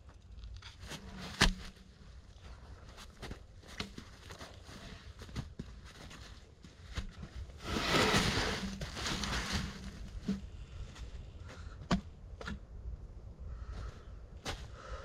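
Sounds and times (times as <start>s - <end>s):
rustling in forest litter: 2.4s - 11.3s.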